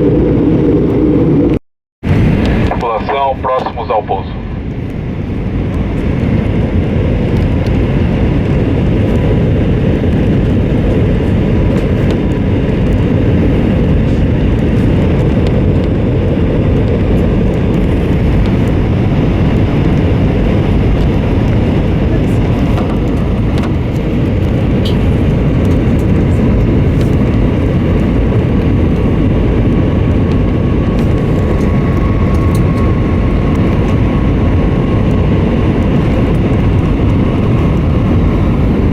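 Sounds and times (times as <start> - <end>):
aircraft cabin engine roar: 0.0 - 38.9
faint steady whine: 2.4 - 6.0.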